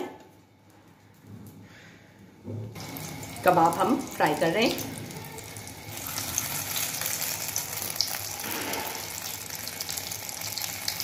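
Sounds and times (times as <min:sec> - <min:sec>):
food sizzling in hot oil: 0:02.8 - 0:11.0
oil popping and crackling: 0:02.8 - 0:11.0.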